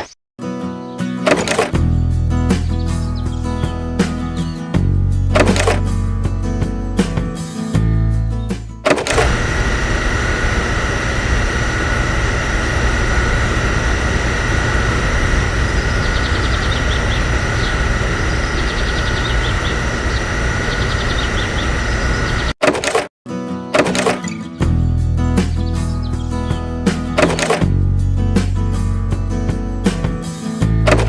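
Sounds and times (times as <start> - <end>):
small motor whining and rattling: 8.9 - 23.0.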